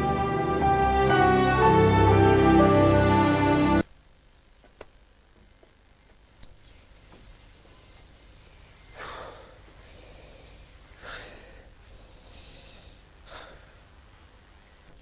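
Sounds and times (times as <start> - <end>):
person breathing sharply: 8.9 - 13.8.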